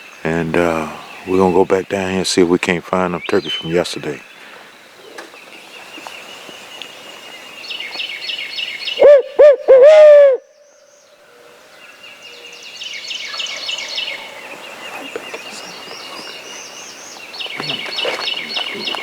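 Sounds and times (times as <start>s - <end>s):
songbirds chirping: 0.0s - 19.0s
owl hoots: 8.9s - 10.6s.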